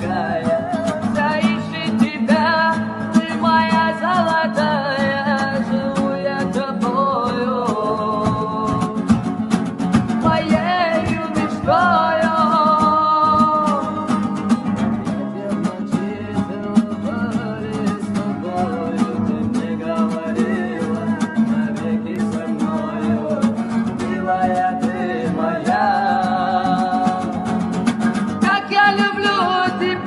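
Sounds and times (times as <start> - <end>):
person singing: 0.0 - 9.2, 10.2 - 27.6, 28.4 - 30.0
acoustic guitar strummed fast: 0.0 - 30.0.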